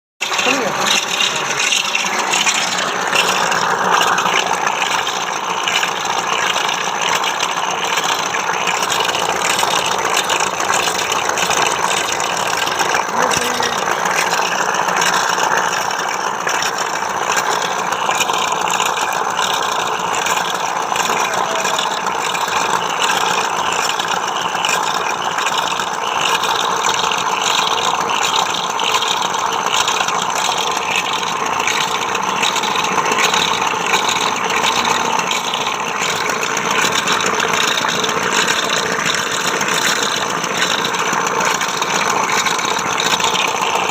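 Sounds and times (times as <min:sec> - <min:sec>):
diesel engine idling with rattle: 0:00.2 - 0:43.9.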